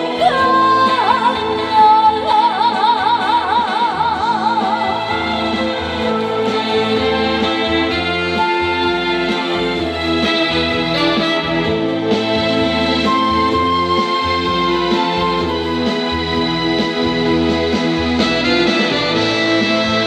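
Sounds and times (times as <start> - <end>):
woman singing with vibrato: 0.0 - 9.3
backing band playing: 4.6 - 20.0.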